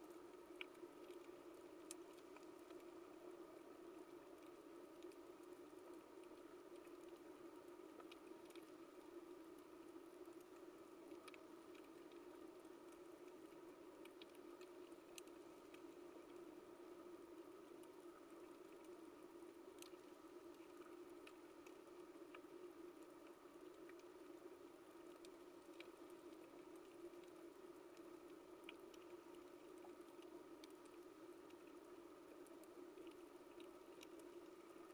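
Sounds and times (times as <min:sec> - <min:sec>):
underwater clicks and crackles: 0:00.0 - 0:34.9
underwater low hum: 0:00.0 - 0:34.9.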